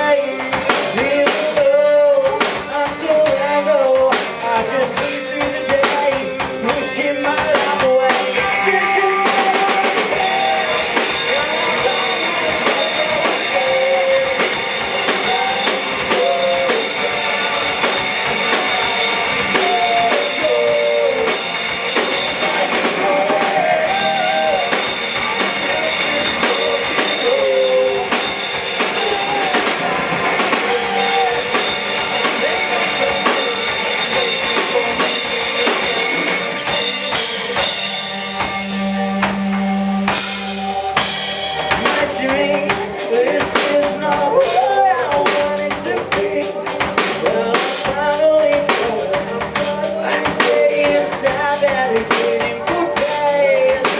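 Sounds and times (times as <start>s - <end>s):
bending lead guitar melody: 0.0s - 53.9s
drum kit beat: 0.0s - 53.9s
rock band playing: 0.0s - 53.9s.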